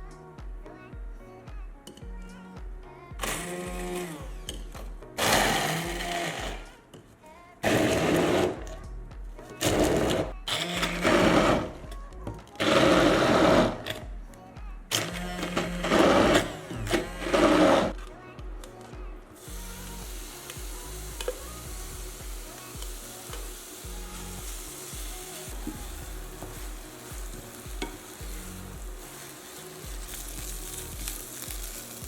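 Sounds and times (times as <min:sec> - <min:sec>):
electric blender pulsing: 0:03.2 - 0:04.4, 0:05.2 - 0:06.8, 0:07.6 - 0:08.8, 0:09.6 - 0:11.8, 0:12.6 - 0:14.0, 0:14.9 - 0:18.0, 0:19.5 - 0:32.0.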